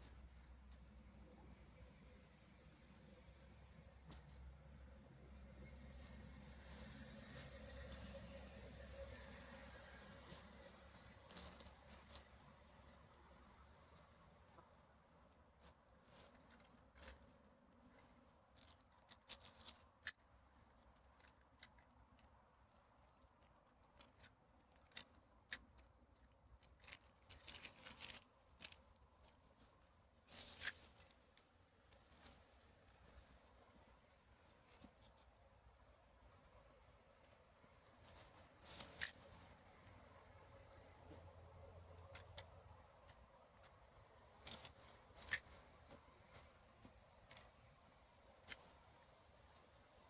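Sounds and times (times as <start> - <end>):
crackles and rustles of forest litter: 5.6 - 13.1, 26.6 - 35.4, 37.2 - 41.3.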